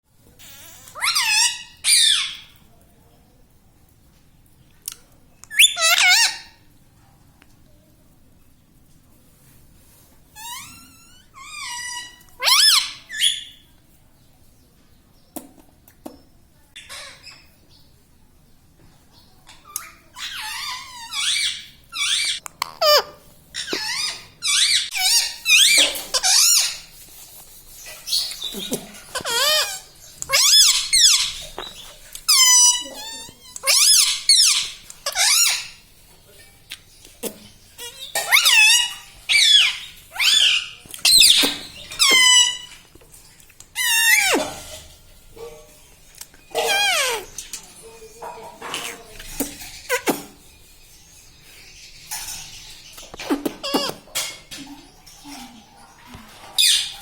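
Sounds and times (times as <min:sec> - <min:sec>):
parrot harsh calls: 0:00.4 - 0:02.5, 0:05.5 - 0:06.6, 0:10.4 - 0:13.6, 0:19.7 - 0:26.9, 0:27.8 - 0:35.8, 0:37.8 - 0:42.8, 0:43.8 - 0:44.9, 0:46.4 - 0:47.4, 0:53.2 - 0:54.4.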